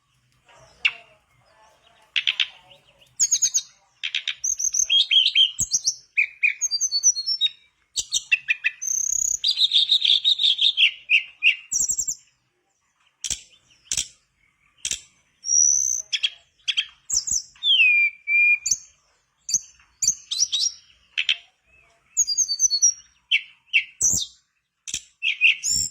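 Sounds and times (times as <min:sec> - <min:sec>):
songbird singing: 0:00.0 - 0:25.9
sharp clicks: 0:02.0 - 0:04.9, 0:13.2 - 0:14.2, 0:14.8 - 0:15.2, 0:24.8 - 0:25.2.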